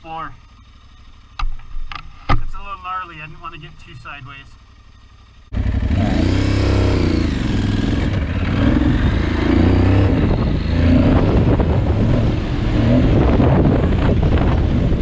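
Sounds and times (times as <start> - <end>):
motorcycle engine revving: 4.5 - 15.0
heavy low rumble: 5.5 - 15.0.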